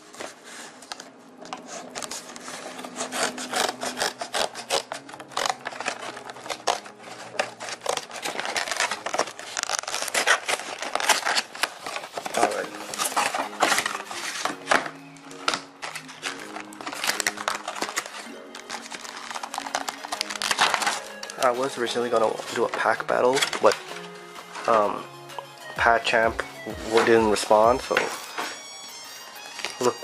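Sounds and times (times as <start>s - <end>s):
plastic packaging crackling: 0.0s - 24.9s, 26.9s - 30.0s
scissors cutting cardboard: 1.5s - 21.4s.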